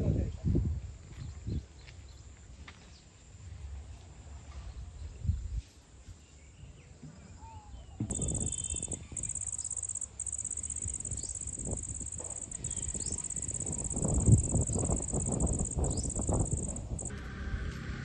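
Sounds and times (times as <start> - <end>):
high-pitched insect trill: 8.1 - 17.1.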